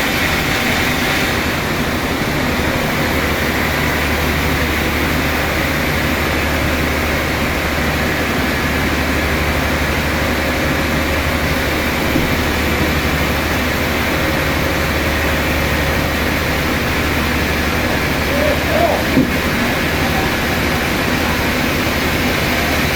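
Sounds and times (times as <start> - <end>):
machinery humming steadily: 0.0 - 22.9.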